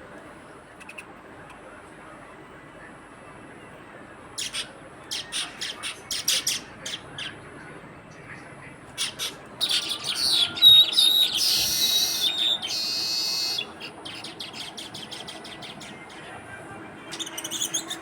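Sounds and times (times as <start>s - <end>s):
small birds chirping: 9.0s - 16.2s.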